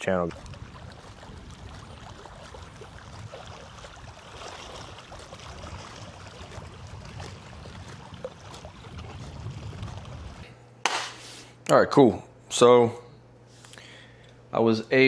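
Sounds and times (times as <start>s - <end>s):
moving water: 0.0s - 10.5s
small ticks and splashes: 0.3s - 10.4s
low rumble: 5.0s - 10.5s.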